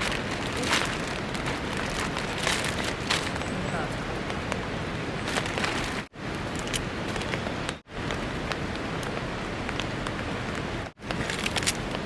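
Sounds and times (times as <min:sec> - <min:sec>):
steady rainfall: 0:00.0 - 0:12.0.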